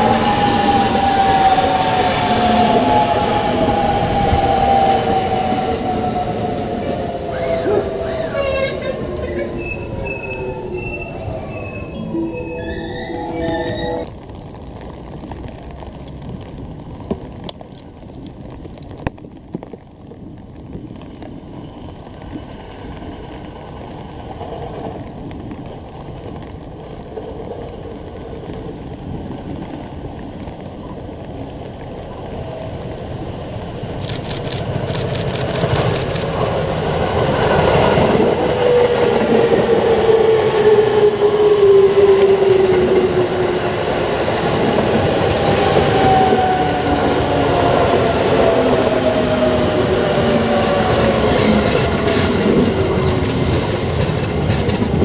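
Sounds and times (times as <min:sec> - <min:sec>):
wheels clattering on rails: 0:42.0 - 0:55.0.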